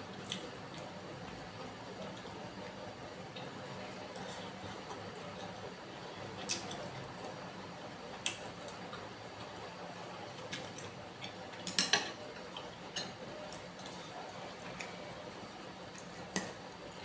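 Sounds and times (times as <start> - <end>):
cutlery clinking against a bowl: 11.2 - 13.2.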